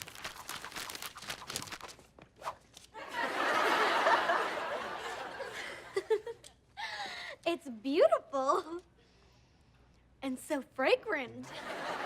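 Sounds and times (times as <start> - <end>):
paper crinkling: 0.0 - 3.0
studio audience laughing: 3.0 - 6.3, 11.5 - 12.0.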